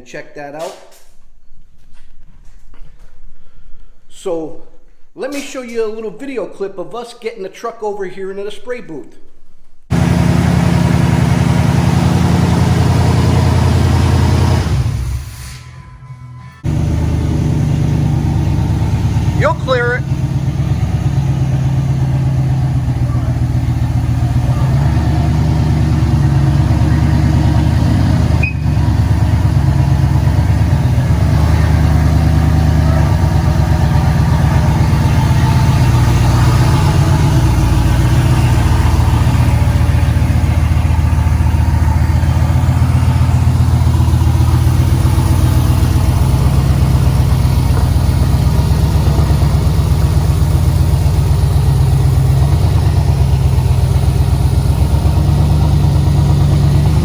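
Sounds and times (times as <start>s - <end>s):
engine idling with exhaust pulse: 16.6s - 57.0s.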